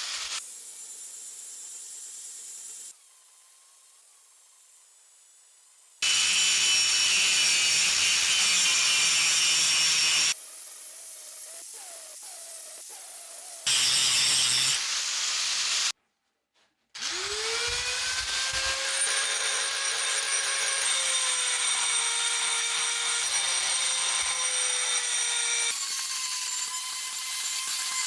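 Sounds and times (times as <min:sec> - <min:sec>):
power tool motor whine: 0:06.0 - 0:10.4, 0:13.6 - 0:15.9, 0:17.0 - 0:28.0.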